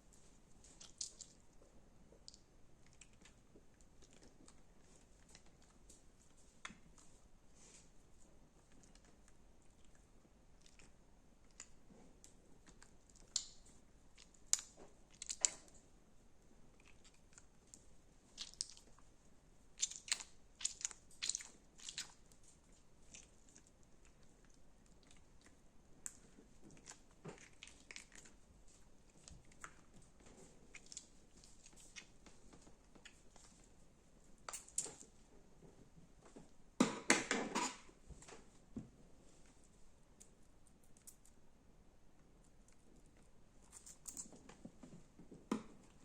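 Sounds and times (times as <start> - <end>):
crunchy slime crackling: 16.8 - 19.0, 19.8 - 28.4.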